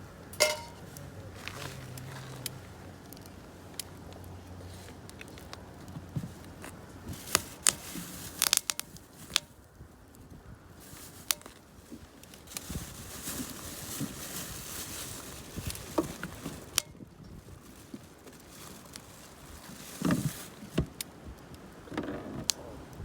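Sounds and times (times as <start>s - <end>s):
campfire crackling and popping: 0.4s - 10.3s.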